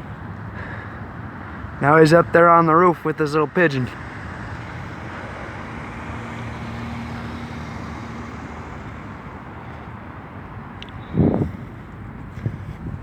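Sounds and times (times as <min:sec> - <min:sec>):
background traffic noise: 0:00.0 - 0:13.0.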